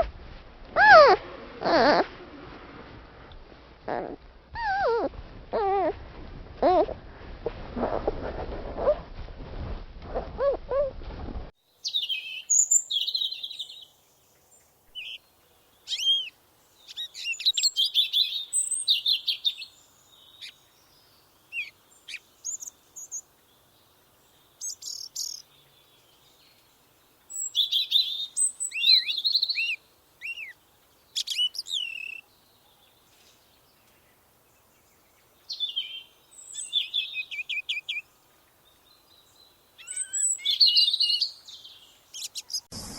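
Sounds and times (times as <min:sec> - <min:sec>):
small animal whining: 0:00.8 - 0:02.1, 0:03.9 - 0:06.0
songbird chirping and trilling: 0:11.7 - 0:42.9.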